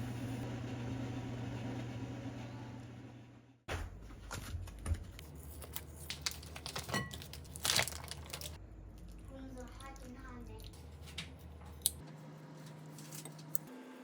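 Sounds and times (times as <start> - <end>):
packaging crinkling and tearing: 5.3 - 8.6.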